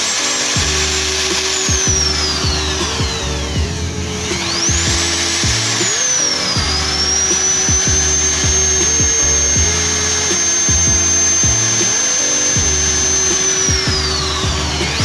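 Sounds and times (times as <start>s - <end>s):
background music: 0.0s - 15.0s
electric drill whining: 0.0s - 15.0s.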